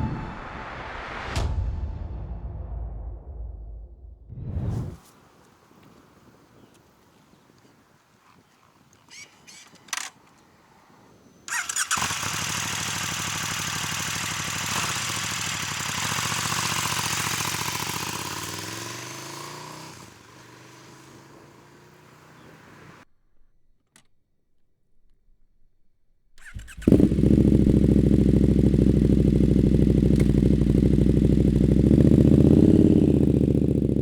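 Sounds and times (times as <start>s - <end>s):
motorcycle engine starting and idling: 11.5s - 23.0s, 26.4s - 34.0s.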